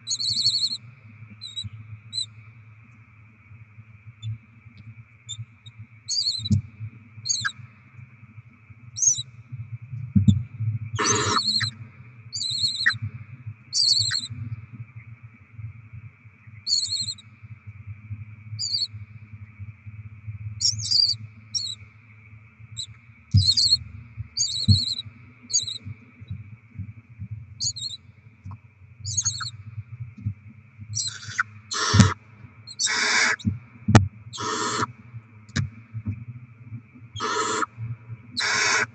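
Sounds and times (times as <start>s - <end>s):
steady low hum: 0.0s - 38.9s
owl chicks hissing begging calls: 0.1s - 0.8s, 11.0s - 11.7s, 12.4s - 13.0s, 13.8s - 14.3s, 16.7s - 17.2s, 20.6s - 21.8s, 23.4s - 23.8s, 24.4s - 25.8s, 29.1s - 29.5s, 31.0s - 33.4s, 34.3s - 34.9s, 37.2s - 37.7s, 38.4s - 38.9s.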